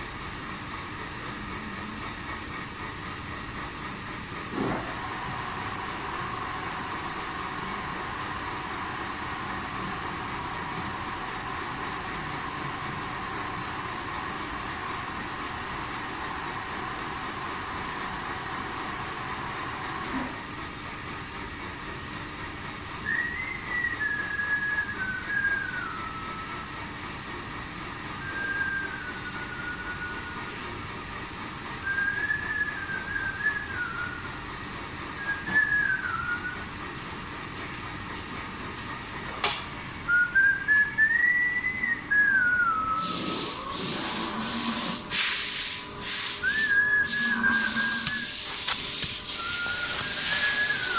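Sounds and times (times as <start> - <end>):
steady background hum: 0.0 - 50.9
person whistling a tune: 23.0 - 26.8, 28.2 - 30.6, 31.8 - 34.4, 35.2 - 36.7, 40.1 - 43.6, 46.4 - 48.4, 49.0 - 50.9
click: 48.0 - 49.2.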